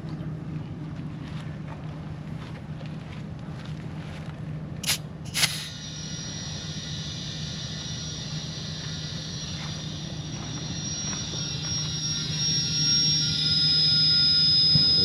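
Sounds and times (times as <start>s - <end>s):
steady low hum: 0.0s - 15.0s
air hissing into tire: 4.8s - 7.8s
air blasts from valve chuck: 4.8s - 15.0s
thin high whistle: 4.8s - 15.0s.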